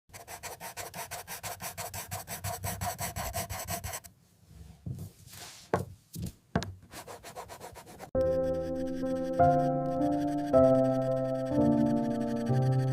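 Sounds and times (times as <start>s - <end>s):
pencil shading on paper: 0.1s - 4.1s, 6.9s - 12.9s.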